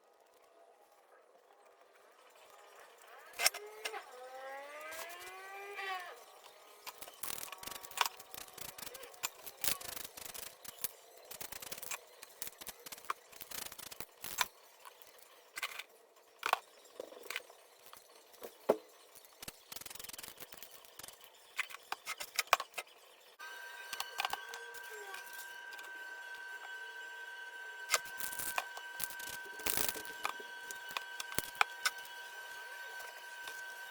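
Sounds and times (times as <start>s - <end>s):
steady high tone: 23.4s - 33.9s.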